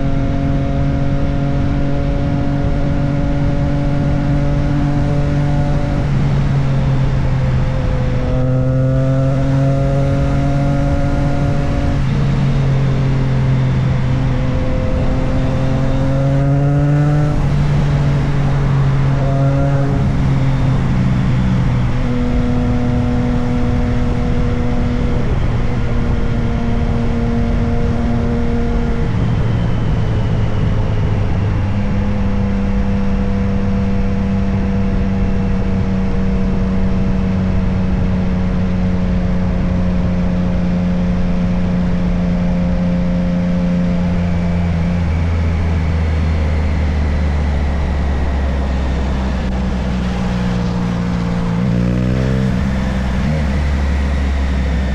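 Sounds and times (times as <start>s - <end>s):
motorcycle engine revving: 0.0s - 30.7s, 34.9s - 54.9s
wind noise: 0.0s - 54.9s.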